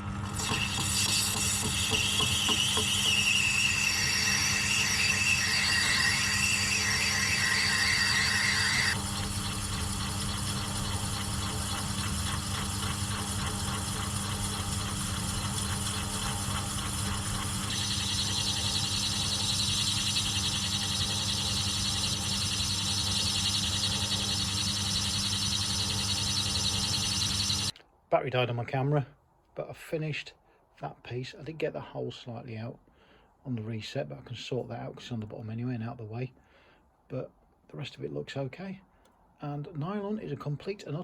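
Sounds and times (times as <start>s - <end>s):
machine tool motor hum: 0.0s - 27.7s
high-pitched cutting sound: 0.4s - 27.7s.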